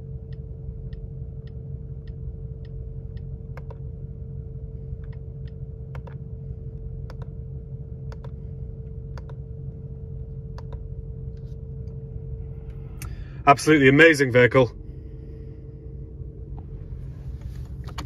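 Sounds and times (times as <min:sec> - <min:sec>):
car engine idling: 0:00.0 - 0:18.0
sharp clicks: 0:10.6 - 0:10.8.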